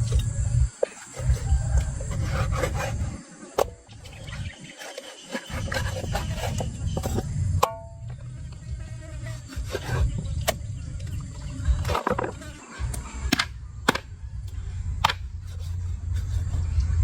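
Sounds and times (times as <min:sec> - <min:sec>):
steady low rumble: 0:00.0 - 0:04.6, 0:05.6 - 0:17.0.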